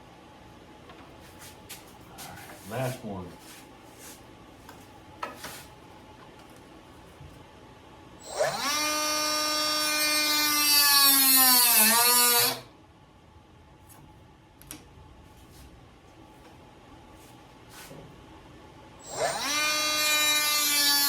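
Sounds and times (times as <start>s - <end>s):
electric power tool whining: 8.2s - 12.7s, 19.0s - 21.0s.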